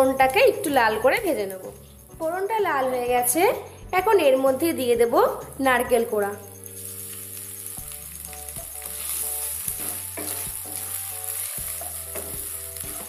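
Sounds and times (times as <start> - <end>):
coconut sizzling in hot oil: 4.6 - 13.0
wooden spatula scraping pan: 8.9 - 13.0.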